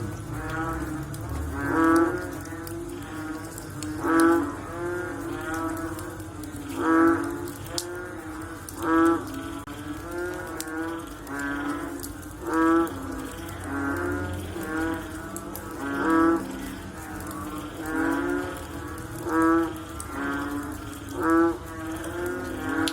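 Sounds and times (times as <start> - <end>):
frogs croaking: 0.0 - 22.9.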